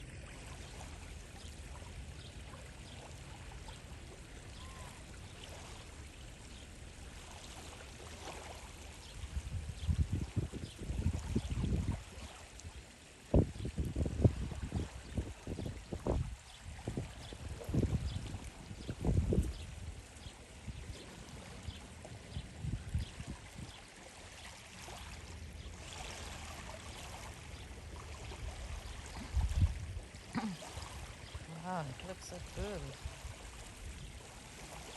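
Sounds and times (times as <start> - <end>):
rushing water: 0.0 - 34.9
wind gusts buffeting microphone: 9.2 - 12.1, 13.3 - 21.0, 22.2 - 23.8, 29.1 - 30.5.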